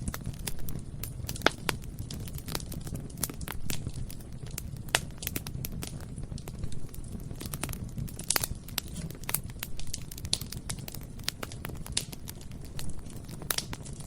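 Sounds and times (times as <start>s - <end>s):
bonfire roaring: 0.0s - 14.0s
burning wood crackling and popping: 0.0s - 14.0s.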